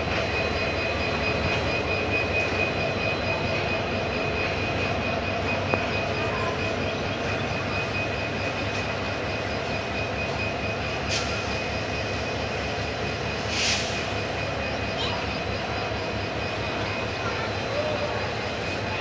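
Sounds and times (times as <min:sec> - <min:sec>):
train wheels rumbling on rails: 0:00.0 - 0:19.0
short hisses: 0:13.5 - 0:14.0.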